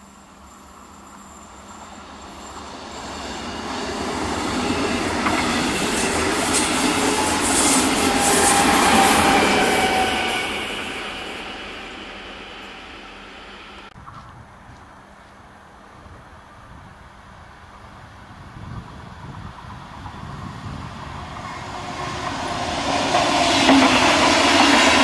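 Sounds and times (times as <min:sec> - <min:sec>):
train passing at speed: 0:00.0 - 0:14.0, 0:15.5 - 0:25.0
wheel squeal: 0:00.4 - 0:13.8.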